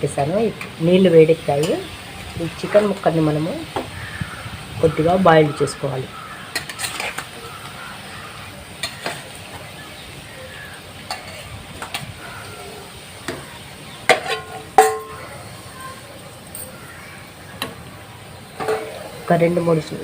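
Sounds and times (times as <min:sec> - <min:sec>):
faint steady hiss: 0:00.0 - 0:20.0
utensil clinking against pot: 0:14.1 - 0:15.3, 0:18.6 - 0:19.1.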